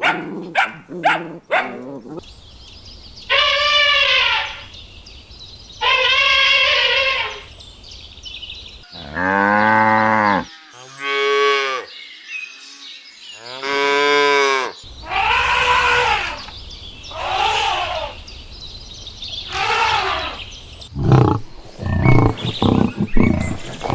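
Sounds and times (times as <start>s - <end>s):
cattle mooing: 13.6s - 18.3s, 19.5s - 20.5s.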